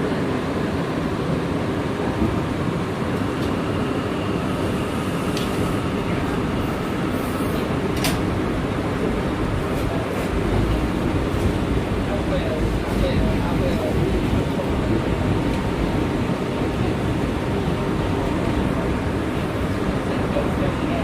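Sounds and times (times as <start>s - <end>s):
subway wheels on rail: 0.0s - 21.0s.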